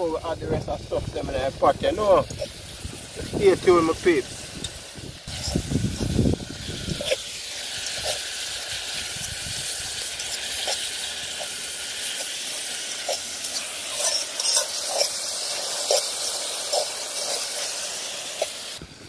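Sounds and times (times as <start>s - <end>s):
vegetables sizzling in a pot: 0.0s - 19.0s.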